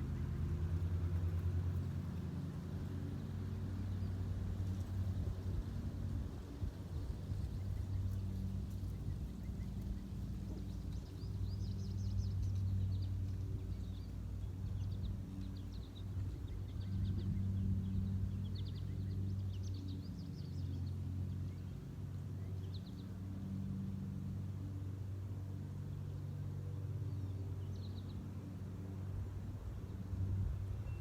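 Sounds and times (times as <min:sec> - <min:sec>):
small birds chirping: 0:00.0 - 0:23.7
steady low hum: 0:00.0 - 0:31.0.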